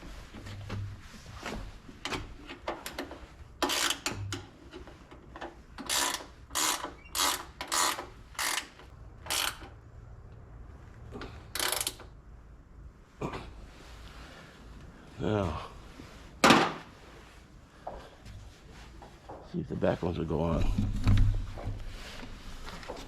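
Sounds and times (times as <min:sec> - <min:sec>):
ratchet wrench clicking: 0:03.6 - 0:04.3, 0:05.8 - 0:09.8, 0:11.6 - 0:12.1.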